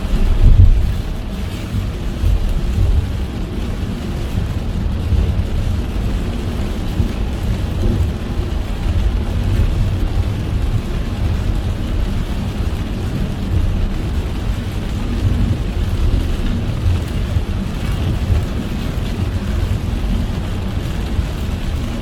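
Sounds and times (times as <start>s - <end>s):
rain hissing: 0.0s - 22.0s
road and engine rumble: 0.0s - 22.0s.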